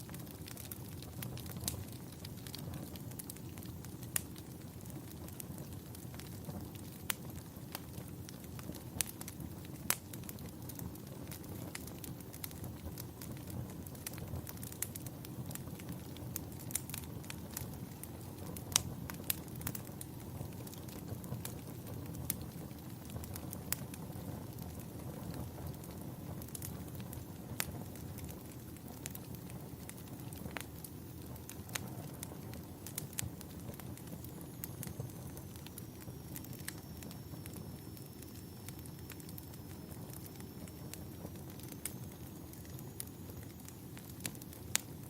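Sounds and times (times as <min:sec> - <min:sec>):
fire crackles and pops: 0:00.0 - 0:45.0
wood fire rumble: 0:00.0 - 0:45.0
faint high whistle: 0:34.6 - 0:43.9.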